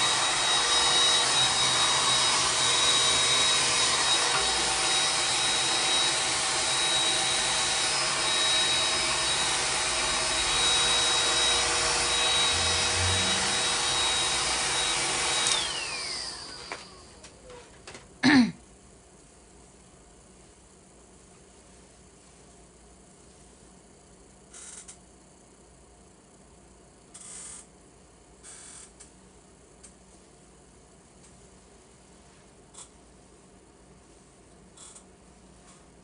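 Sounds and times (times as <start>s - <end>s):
hair dryer running: 0.0s - 17.4s.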